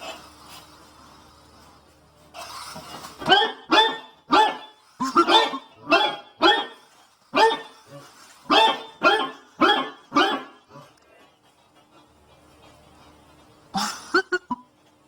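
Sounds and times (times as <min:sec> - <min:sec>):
dog barking: 0:03.2 - 0:06.8, 0:07.4 - 0:07.7, 0:08.5 - 0:10.6.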